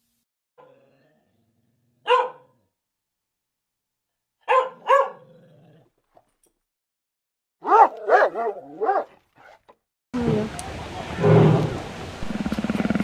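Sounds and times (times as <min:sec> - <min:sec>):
dog barking: 0:00.6 - 0:00.8, 0:02.0 - 0:02.6, 0:04.4 - 0:05.3, 0:07.6 - 0:09.6.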